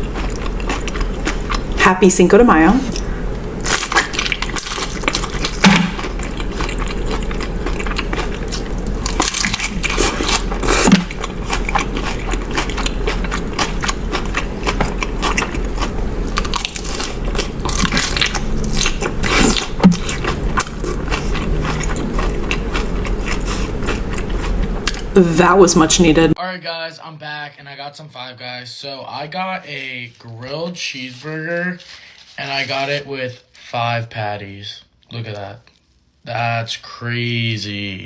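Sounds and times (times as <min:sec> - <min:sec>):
crunching and chewing food: 0:00.0 - 0:01.8, 0:02.9 - 0:25.2, 0:30.2 - 0:32.9.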